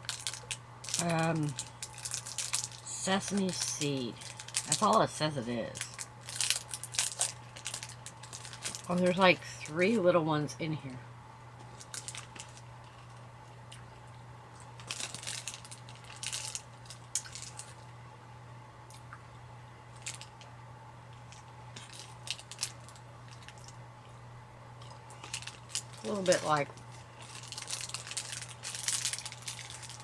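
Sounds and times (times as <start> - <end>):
brittle crunching when chewed: 0.0 - 2.9, 5.8 - 9.0, 11.6 - 17.9, 19.9 - 20.5, 21.1 - 24.2, 24.8 - 30.0
steady low hum: 0.0 - 30.0.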